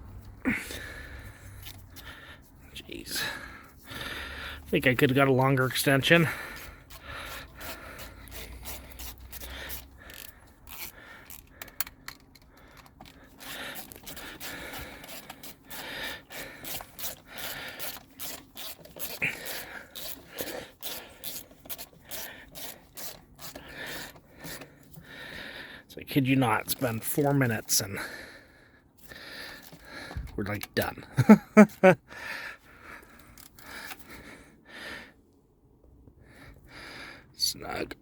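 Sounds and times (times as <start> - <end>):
ratchet clicking and scraping: 4.9 - 25.0, 33.0 - 34.1.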